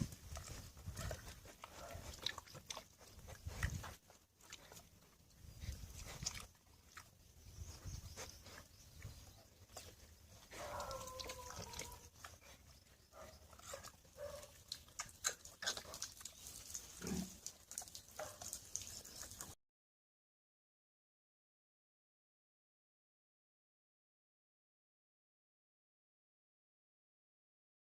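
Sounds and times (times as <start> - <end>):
pig grunting: 0.3 - 4.9, 9.8 - 18.5
pig calling: 9.8 - 19.5.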